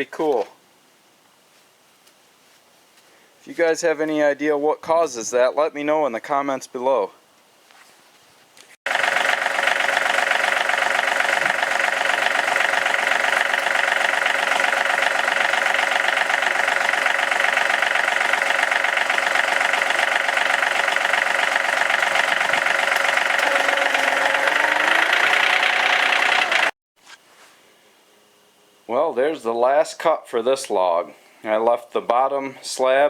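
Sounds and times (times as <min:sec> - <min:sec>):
sawmill engine cutting log: 0:08.9 - 0:26.8.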